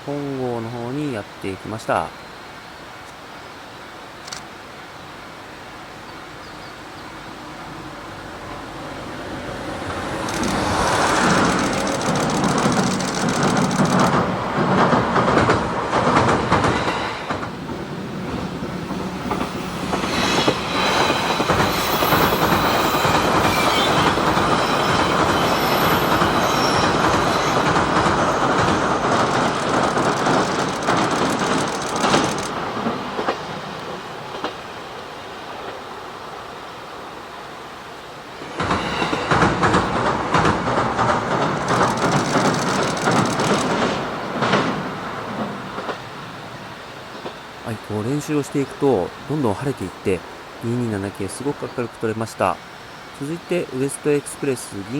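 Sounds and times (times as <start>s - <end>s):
train wheels clattering: 9.8s - 34.8s, 38.4s - 46.2s
train wheel squeal: 10.2s - 14.2s, 16.6s - 17.5s, 19.0s - 32.6s, 38.4s - 44.8s.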